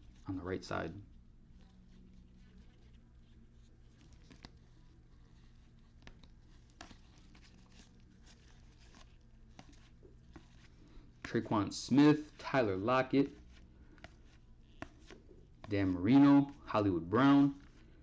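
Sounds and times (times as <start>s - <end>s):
trading cards clicking and rustling: 6.0s - 16.5s.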